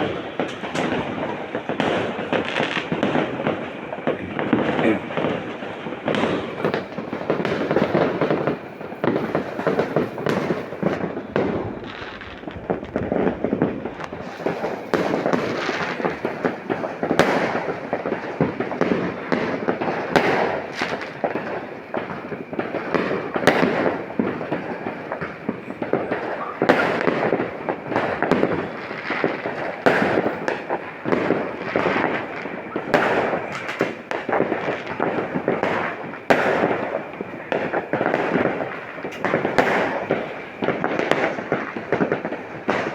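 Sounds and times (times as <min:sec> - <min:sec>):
fireworks and firecrackers: 0:00.0 - 0:42.9.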